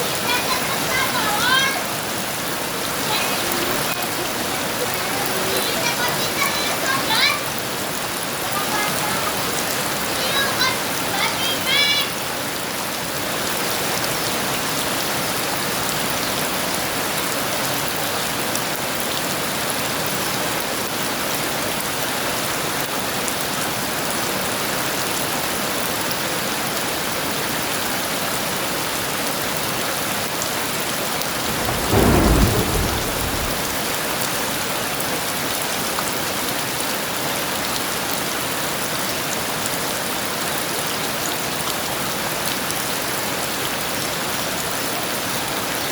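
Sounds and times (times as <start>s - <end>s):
heavy rain pouring: 0.0s - 22.9s, 27.7s - 45.9s
thunder clap: 31.3s - 34.5s.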